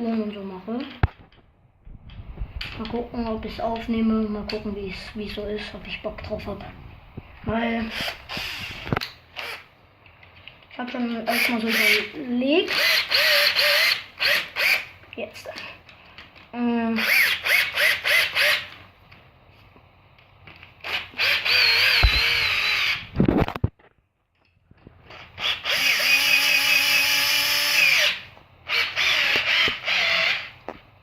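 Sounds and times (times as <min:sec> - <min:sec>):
electric drill driving screws: 0:07.7 - 0:09.7, 0:11.3 - 0:15.0, 0:17.0 - 0:18.8, 0:20.8 - 0:23.3, 0:25.1 - 0:30.7.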